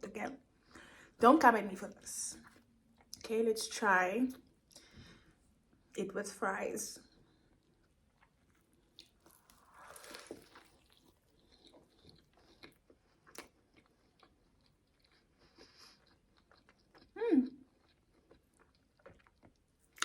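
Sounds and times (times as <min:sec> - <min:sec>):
soft chewing and mouth clicks: 0:02.3 - 0:03.3, 0:04.4 - 0:05.9, 0:07.0 - 0:20.0
crunchy bite: 0:09.0 - 0:14.3.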